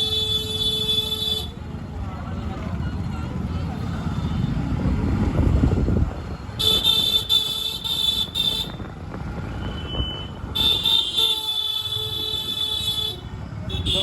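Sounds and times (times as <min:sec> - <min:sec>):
low rumble of engines: 0:00.0 - 0:14.0
vehicle horn honking: 0:06.6 - 0:08.9, 0:09.5 - 0:14.0.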